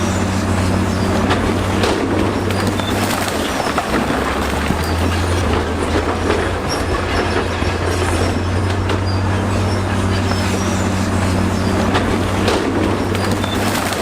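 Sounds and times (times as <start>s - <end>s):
diesel engine drone: 0.0s - 14.0s
steel tracks clattering: 0.0s - 14.0s
track gear squeaks: 0.0s - 14.0s.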